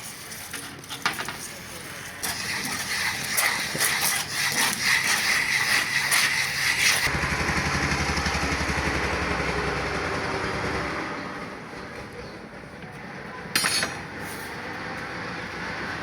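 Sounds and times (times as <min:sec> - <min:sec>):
harsh rasping machine noise: 0:02.0 - 0:10.8.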